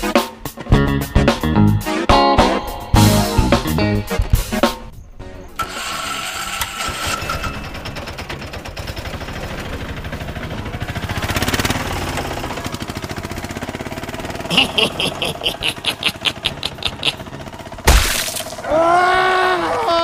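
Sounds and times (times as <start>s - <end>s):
music: 0.0s - 5.6s
small engine puttering: 5.6s - 20.0s.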